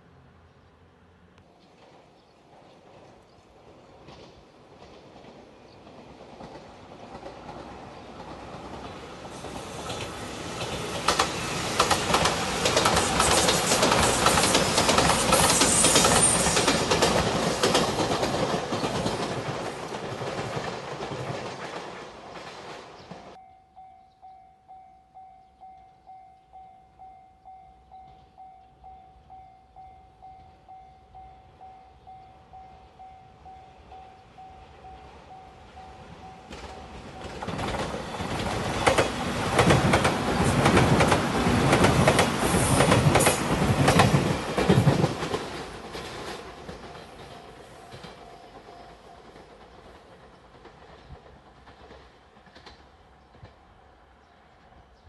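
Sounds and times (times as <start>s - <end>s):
electric train passing: 0.0s - 55.0s
wheels clacking over rail joints: 1.6s - 23.4s, 36.0s - 53.6s.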